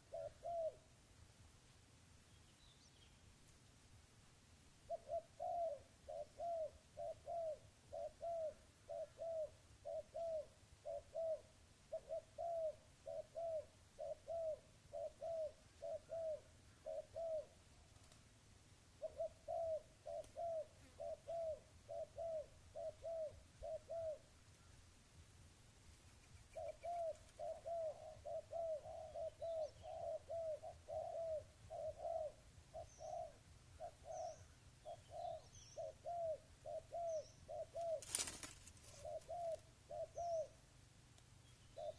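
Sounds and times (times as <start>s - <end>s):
dove cooing: 0.0s - 0.9s, 4.8s - 17.6s, 19.0s - 24.6s, 26.4s - 40.6s, 41.6s - 41.9s
small bird chirping: 25.8s - 40.6s, 41.3s - 41.9s.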